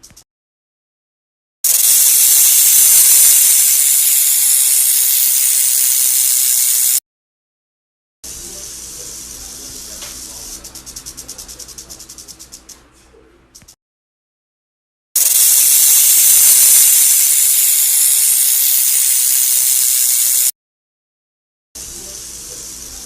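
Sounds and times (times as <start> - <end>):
rattlesnake rattle buzzing: 1.7 - 7.0, 15.2 - 20.5.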